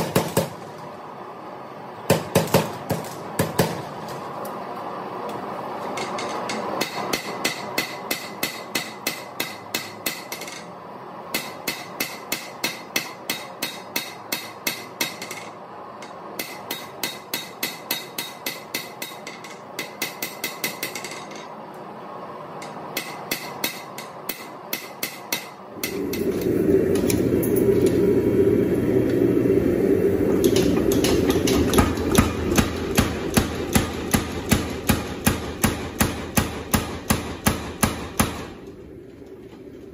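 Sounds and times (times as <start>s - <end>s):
hammer striking steel on anvil: 6.0s - 10.7s, 11.3s - 21.6s, 22.6s - 26.3s, 30.4s - 38.6s
loud steady rushing noise: 22.0s - 39.0s.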